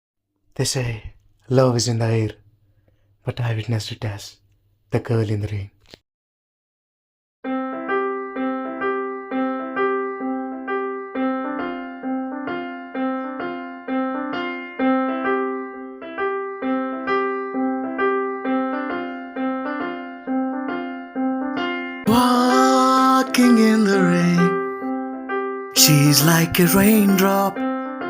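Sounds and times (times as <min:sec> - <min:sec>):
piano playing gentle repeating notes: 0:07.4 - 0:28.0.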